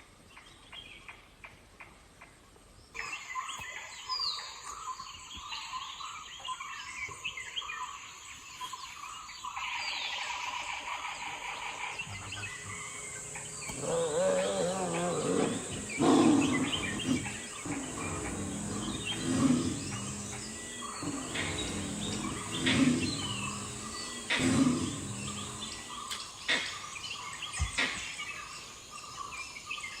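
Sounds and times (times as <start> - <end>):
birds chirping: 11.2 - 29.7
deep animal calls: 11.6 - 26.8
steady high whine: 12.0 - 26.4.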